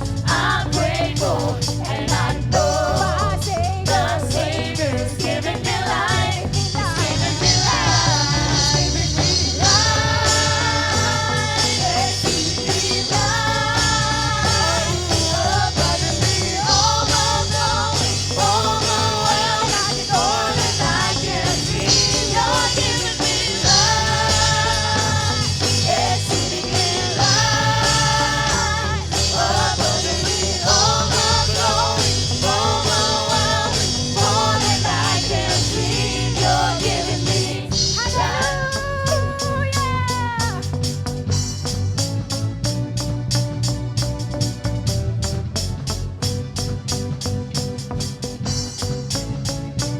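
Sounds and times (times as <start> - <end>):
voices singing: 0.0 - 40.7
band playing worship music: 0.0 - 49.9
bass line: 0.0 - 49.9.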